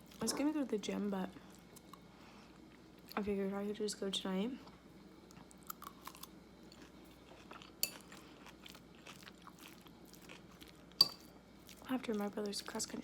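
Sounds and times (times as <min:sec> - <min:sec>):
person chewing crunchy food: 0:05.3 - 0:12.3.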